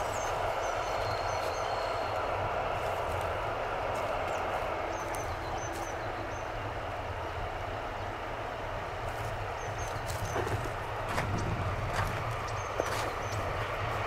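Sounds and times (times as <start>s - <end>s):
small birds chirping: 0.0s - 8.2s, 9.0s - 14.0s
diesel locomotive engine drone: 0.0s - 14.0s.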